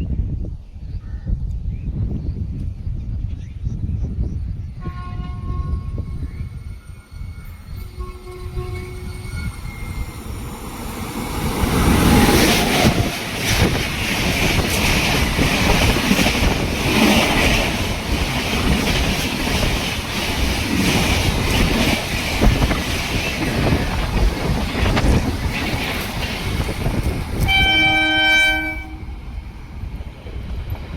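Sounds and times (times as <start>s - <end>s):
train horn: 4.8s - 6.3s, 7.8s - 10.0s, 27.4s - 29.2s
train rushing past: 5.3s - 30.9s.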